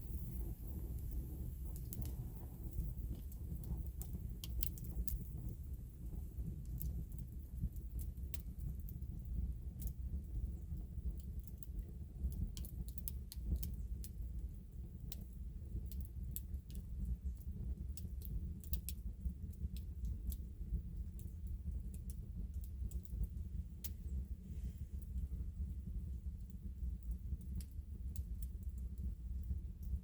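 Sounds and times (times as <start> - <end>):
steady low rumble: 0.0 - 12.6, 20.0 - 30.0.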